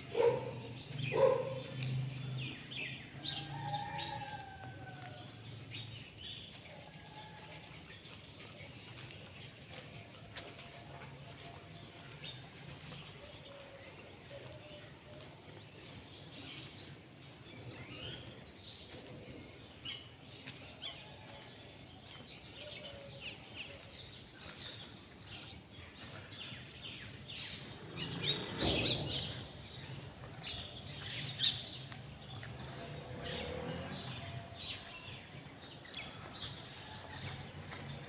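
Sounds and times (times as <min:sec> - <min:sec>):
small birds chirping: 0:00.0 - 0:03.0.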